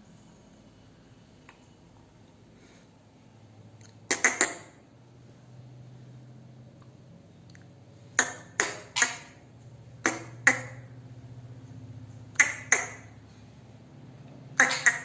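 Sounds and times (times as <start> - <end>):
parrot squawking: 4.1 - 4.8, 8.2 - 9.4, 10.0 - 10.9, 12.3 - 13.2, 14.5 - 15.0.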